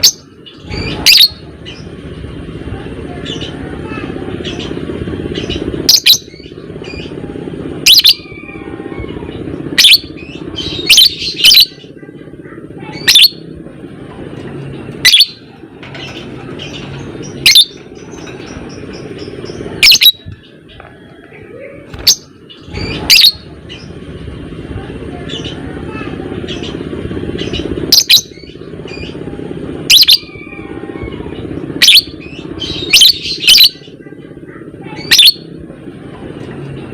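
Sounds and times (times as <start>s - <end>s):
low background hum: 0.0s - 36.9s
lovebird shrill calls: 19.8s - 20.2s, 22.0s - 23.4s, 31.8s - 33.8s, 35.0s - 35.4s.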